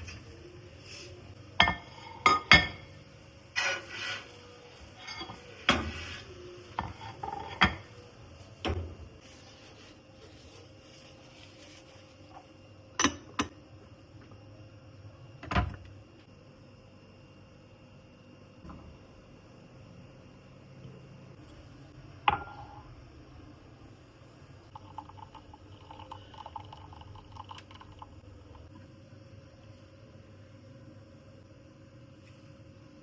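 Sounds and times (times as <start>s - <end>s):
dishes and utensils clinking: 1.6s - 3.0s, 4.9s - 8.0s.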